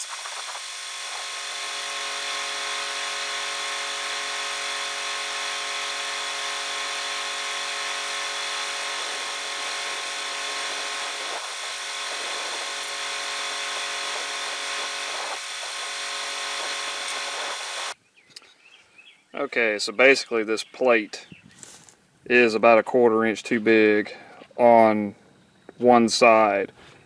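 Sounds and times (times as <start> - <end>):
angle grinder grinding steel: 0.0 - 18.0.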